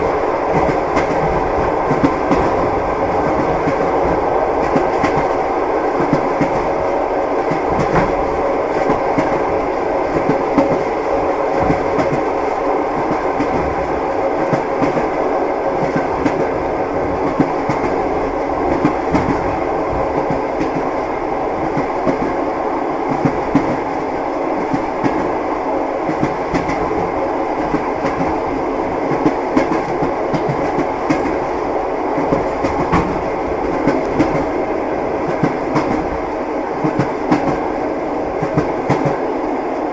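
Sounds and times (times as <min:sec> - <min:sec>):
train wheels clattering over rail joints: 0:32.2 - 0:34.5.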